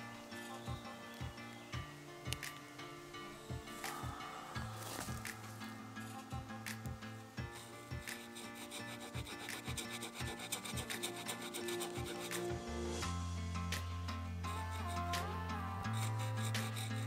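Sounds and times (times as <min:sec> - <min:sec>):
saw blade rasping through wood: 0:08.0 - 0:12.4, 0:15.8 - 0:17.0.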